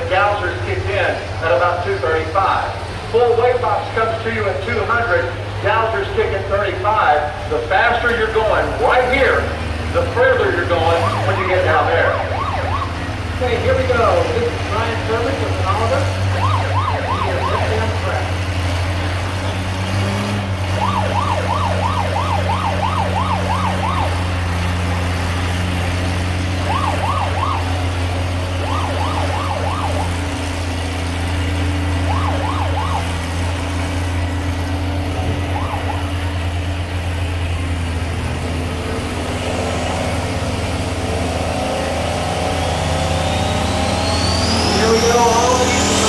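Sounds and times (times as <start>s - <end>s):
tractor engine running under load: 0.0s - 46.0s
warbling siren-like wail: 7.7s - 19.1s, 20.5s - 30.6s, 31.7s - 34.3s, 35.1s - 36.7s, 38.8s - 46.0s.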